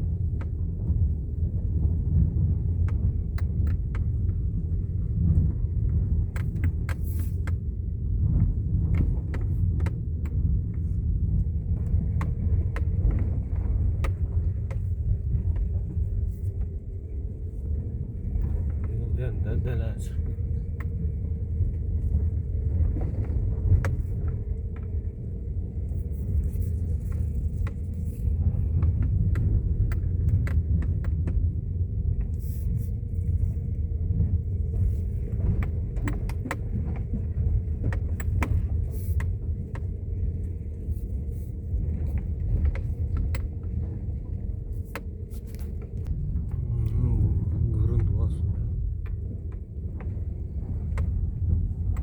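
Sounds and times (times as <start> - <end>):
vehicle rumble: 0.0 - 52.0.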